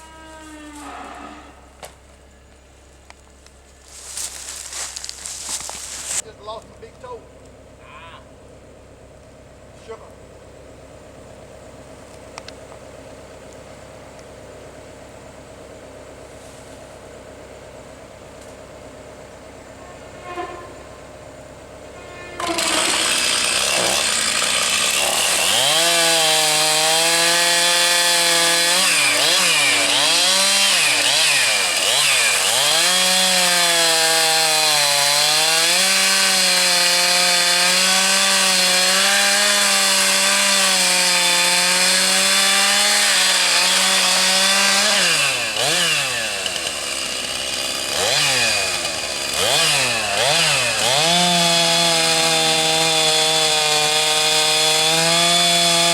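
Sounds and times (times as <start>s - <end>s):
chainsaw running at high revs: 22.4s - 55.9s.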